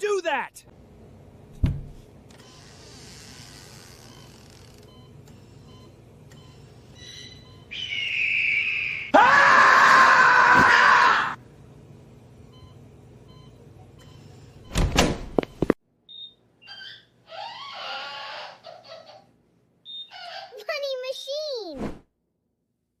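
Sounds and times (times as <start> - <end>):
person screaming: 9.1 - 11.4.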